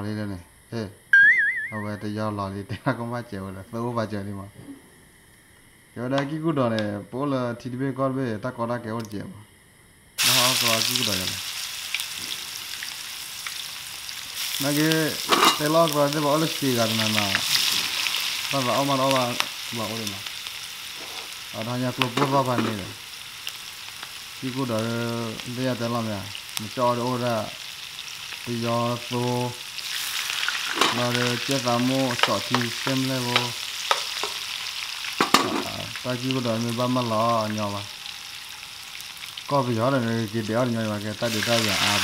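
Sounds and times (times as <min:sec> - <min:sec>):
man talking: 0:01.7 - 0:04.6, 0:10.3 - 0:11.4, 0:14.6 - 0:17.4, 0:18.5 - 0:20.2, 0:21.6 - 0:23.0, 0:24.4 - 0:27.6, 0:28.5 - 0:29.6, 0:30.8 - 0:33.6, 0:35.3 - 0:37.9, 0:39.5 - 0:42.0
onions sizzling in hot oil: 0:10.2 - 0:42.0.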